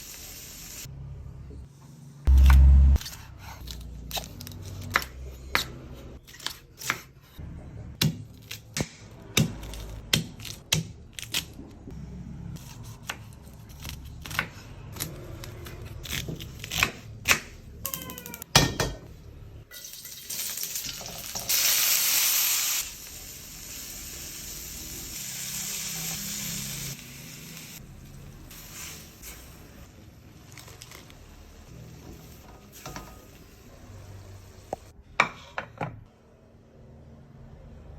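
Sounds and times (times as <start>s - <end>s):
frying sizzle: 0.0s - 0.9s, 19.7s - 34.9s.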